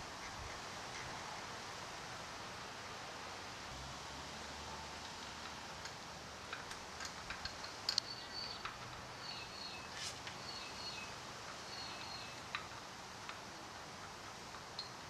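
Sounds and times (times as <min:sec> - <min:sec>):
steady hiss: 0:00.0 - 0:15.0
light clicks and taps: 0:05.0 - 0:09.1.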